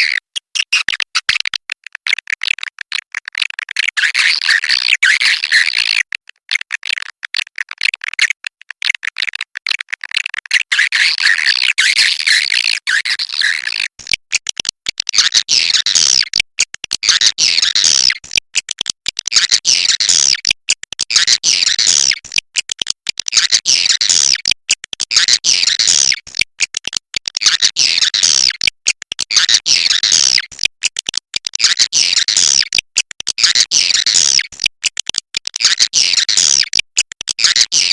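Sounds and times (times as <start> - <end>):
swiftlets twittering and clicking: 9.7 - 37.9.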